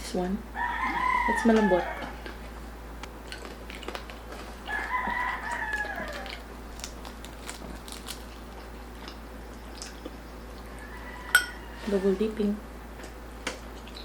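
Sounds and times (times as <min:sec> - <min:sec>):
rooster crowing: 0:00.6 - 0:02.2, 0:04.6 - 0:06.4, 0:10.7 - 0:12.2.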